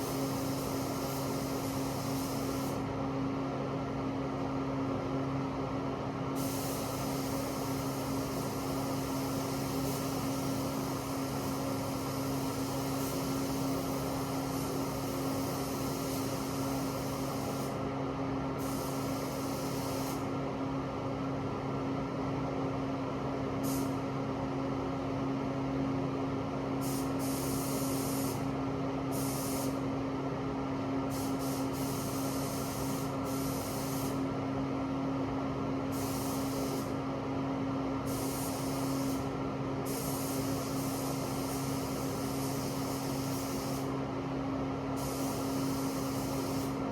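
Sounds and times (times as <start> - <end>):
paint spray gun hissing: 0.0 - 2.8, 6.4 - 17.8, 18.6 - 20.3, 23.6 - 24.0, 26.8 - 28.5, 29.1 - 29.8, 31.1 - 34.2, 35.9 - 37.0, 38.1 - 39.3, 39.9 - 44.0, 45.0 - 46.8.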